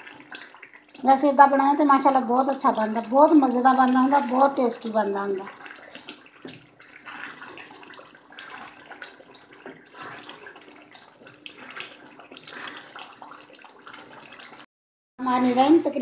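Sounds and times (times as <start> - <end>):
meat sizzling and bubbling in gravy: 0.0 - 14.7
wooden spatula stirring in wok: 5.5 - 14.6.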